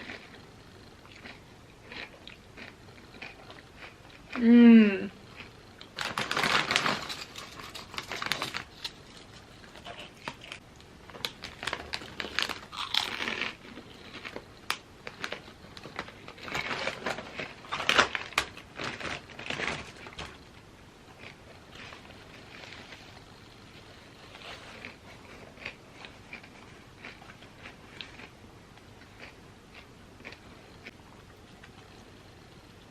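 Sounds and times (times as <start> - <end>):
chips being chewed: 1.0 - 4.4, 5.3 - 20.4, 21.1 - 23.2, 24.3 - 31.9
chip bag crinkling: 5.8 - 20.5.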